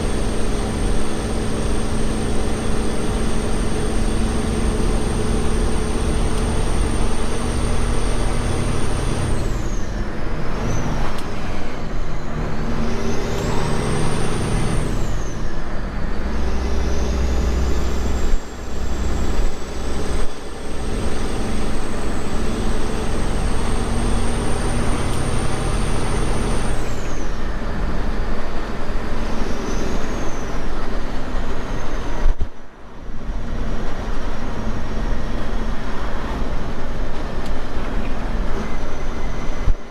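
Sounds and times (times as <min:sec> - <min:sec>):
truck engine running: 0:00.0 - 0:29.4
road noise: 0:00.0 - 0:39.9.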